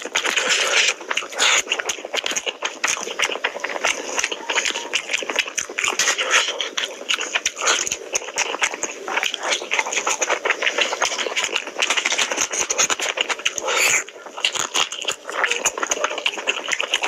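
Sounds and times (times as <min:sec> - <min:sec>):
chewing and lip-smacking: 0:00.0 - 0:17.0
fingers squelching food: 0:00.0 - 0:17.0.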